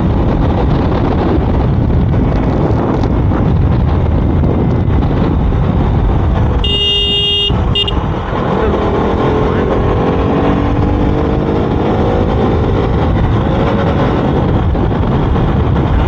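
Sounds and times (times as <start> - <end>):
motorcycle engine and wind rumble: 0.0 - 16.0
vehicle horn honking: 6.6 - 8.3.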